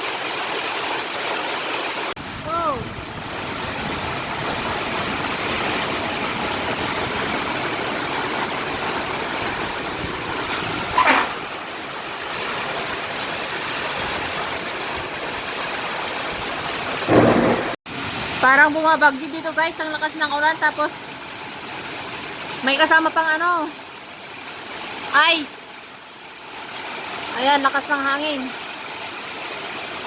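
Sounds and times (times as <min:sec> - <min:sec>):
heavy rain pouring: 0:00.0 - 0:30.0
strong wind: 0:02.2 - 0:12.0
hail: 0:02.2 - 0:18.4.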